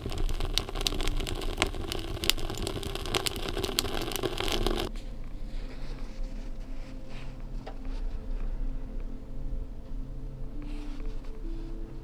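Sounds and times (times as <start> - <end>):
wood fire crackling in stove: 0.0 - 4.9.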